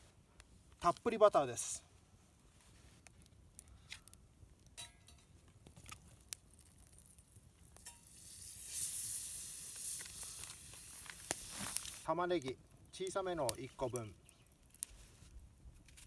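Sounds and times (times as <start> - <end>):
butter sizzling in a pan: 5.9 - 12.1.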